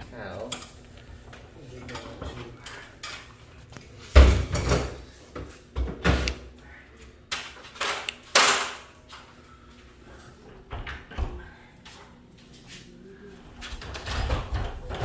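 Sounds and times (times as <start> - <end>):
garage door knocks and rattles: 13.8 - 15.0.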